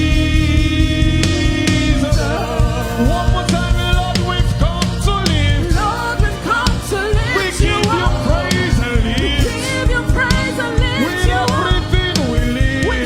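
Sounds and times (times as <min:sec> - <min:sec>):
drums keeping steady beat: 0:00.0 - 0:13.0
singing over band: 0:00.0 - 0:13.0.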